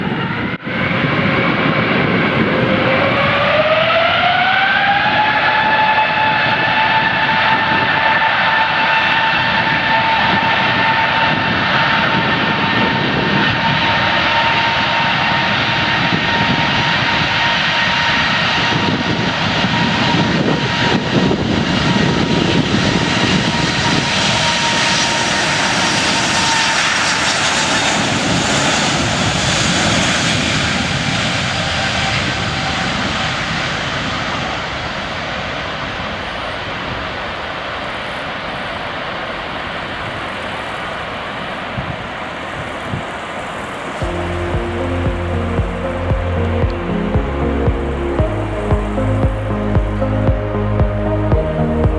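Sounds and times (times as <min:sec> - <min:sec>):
jet engine whine: 0:00.0 - 0:51.9
loud rushing noise: 0:43.8 - 0:51.9.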